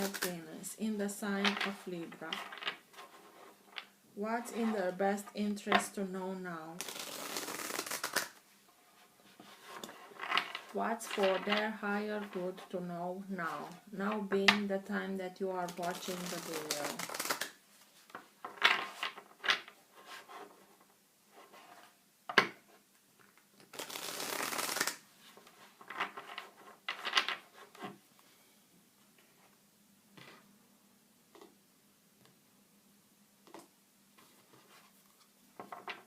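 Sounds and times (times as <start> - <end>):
cards being shuffled: 0.0 - 0.4, 6.8 - 8.4, 15.7 - 17.6, 23.6 - 27.4.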